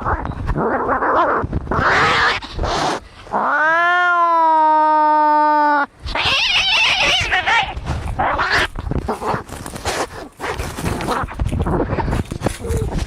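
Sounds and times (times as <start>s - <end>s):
cats snarling: 0.0s - 3.8s, 6.0s - 13.0s
cat yowling: 3.4s - 8.7s.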